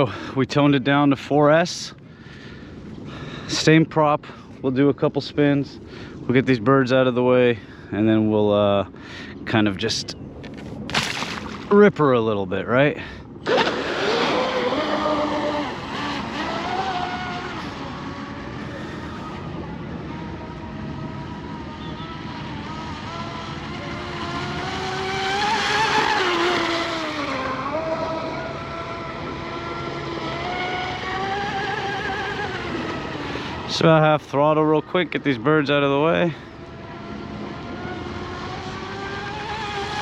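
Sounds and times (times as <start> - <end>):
electric motor whining: 13.4 - 34.0, 36.2 - 40.0.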